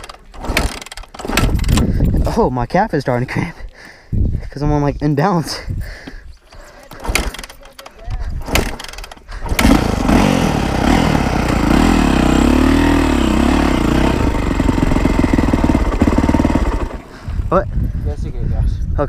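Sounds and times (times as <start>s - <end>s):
dirt bike engine idling: 6.7s - 18.2s.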